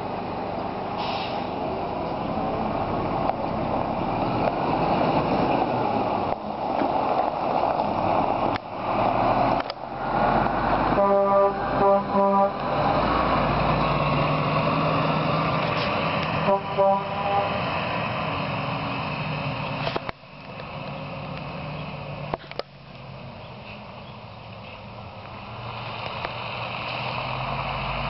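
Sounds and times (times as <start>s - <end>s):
truck running: 0.0s - 28.0s
truck horn toots: 10.9s - 12.7s, 16.4s - 17.7s.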